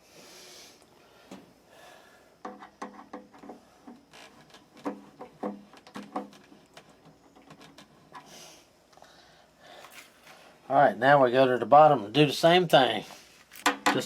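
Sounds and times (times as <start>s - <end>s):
metal tools knocking and clinking: 13.6s - 14.0s.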